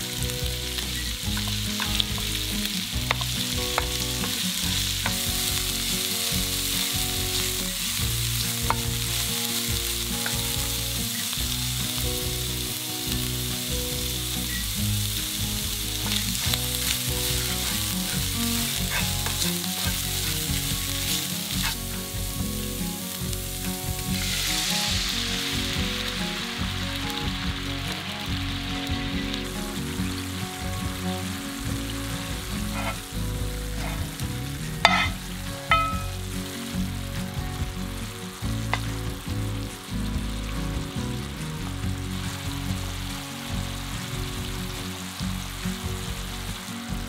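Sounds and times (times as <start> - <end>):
meat sizzling in hot oil: 0.0 - 47.0
wooden spatula scraping a pan: 16.0 - 22.0, 32.6 - 33.1, 33.7 - 34.2, 34.8 - 36.0.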